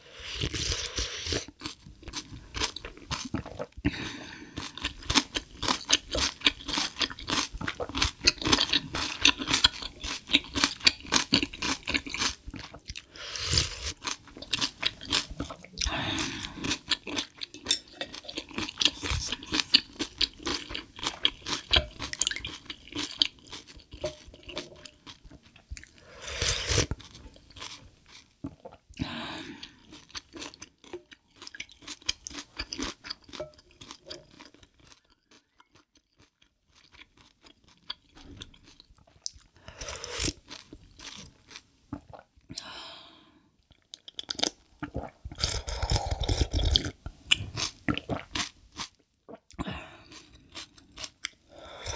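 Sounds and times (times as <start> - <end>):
person chewing crunchy food: 0.2 - 42.7, 43.6 - 51.9.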